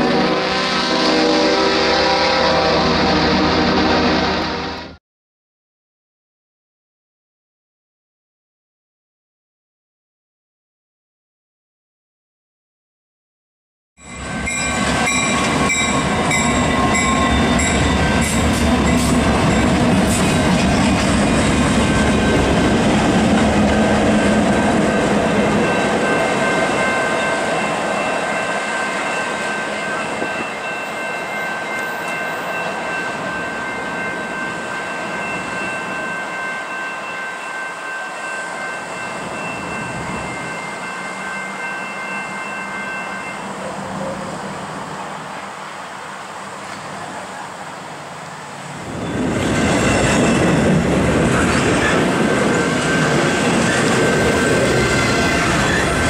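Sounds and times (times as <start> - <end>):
diesel locomotives rumbling past: 0.0 - 5.0, 14.0 - 56.0
container train rolling past: 14.0 - 56.0.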